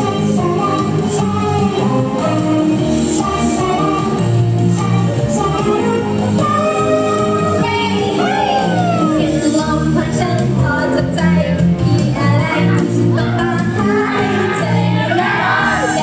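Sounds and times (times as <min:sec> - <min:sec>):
pop song with female voices: 0:00.0 - 0:16.0.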